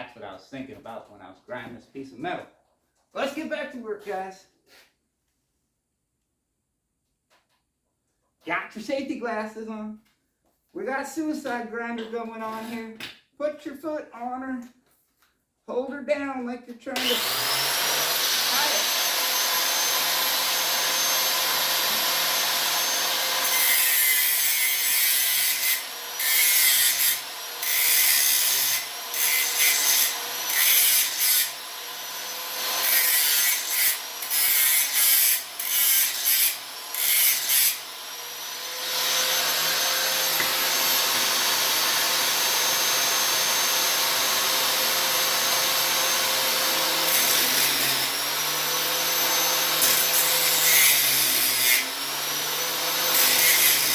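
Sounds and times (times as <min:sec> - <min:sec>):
angle grinder grinding steel: 0:17.0 - 0:53.9
angle grinder whining: 0:17.0 - 0:53.9.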